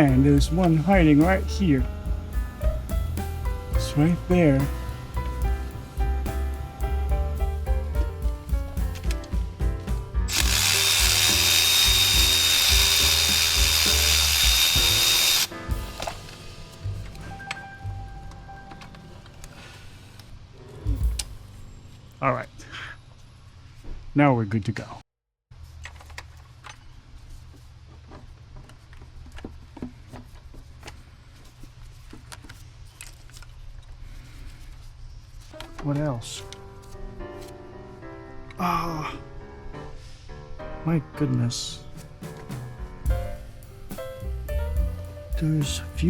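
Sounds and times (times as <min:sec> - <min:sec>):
power tool whining: 0:10.3 - 0:15.5.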